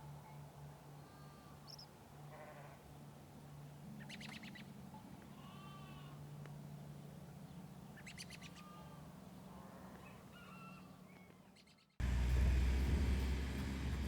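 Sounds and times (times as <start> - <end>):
animal calls and chirps: 4.0 - 6.2, 7.5 - 12.0
loud low rumbling: 12.0 - 14.0
low steady hum: 12.0 - 14.0.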